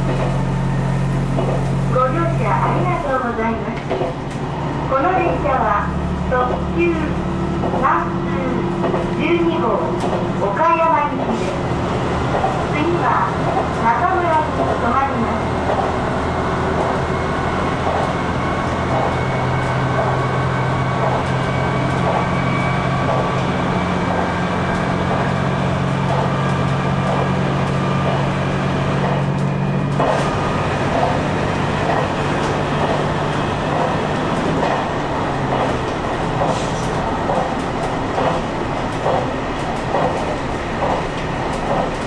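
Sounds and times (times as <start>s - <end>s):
diesel engine drone: 0.0s - 42.0s
wheels clicking over rail joints: 8.7s - 11.6s, 20.9s - 42.0s.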